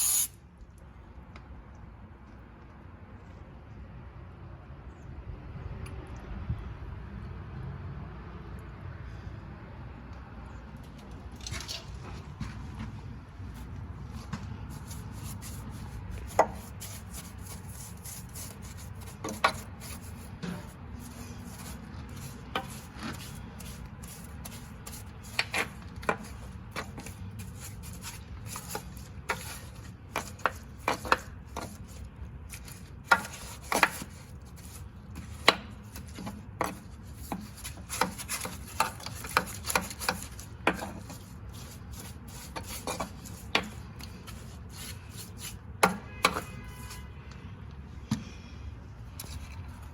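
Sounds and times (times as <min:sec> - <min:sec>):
sharp taps and scraping: 0:10.8 - 0:48.4, 0:49.0 - 0:49.9.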